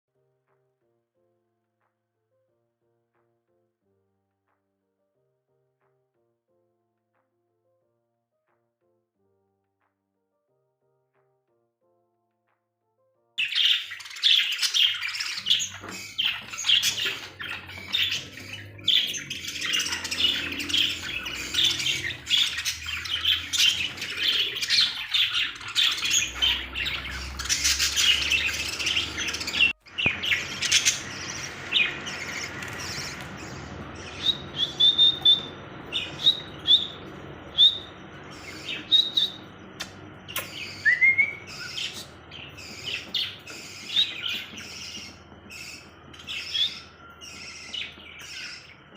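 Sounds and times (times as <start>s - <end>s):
parrots chirping and squawking: 13.4s - 48.9s.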